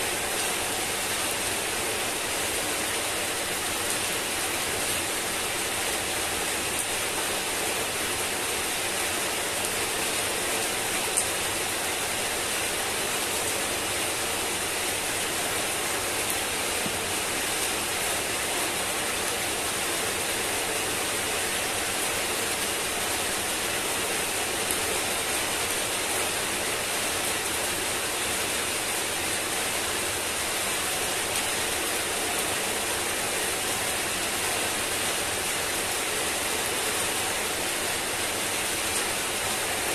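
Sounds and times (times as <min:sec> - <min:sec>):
heavy rain on wet paving: 0:00.0 - 0:39.9.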